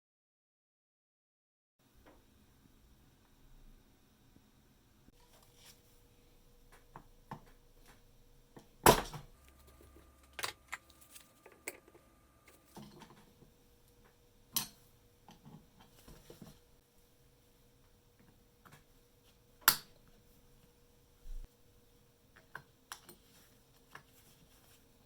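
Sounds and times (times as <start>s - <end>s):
faint steady hum: 1.8s - 25.0s.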